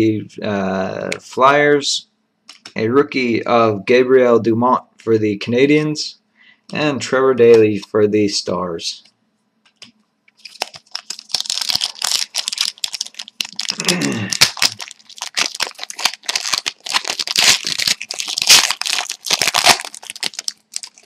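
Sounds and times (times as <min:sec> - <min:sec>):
cards shuffled in hands: 0:09.8 - 0:21.0
wrapper tearing and crinkling: 0:10.4 - 0:21.0.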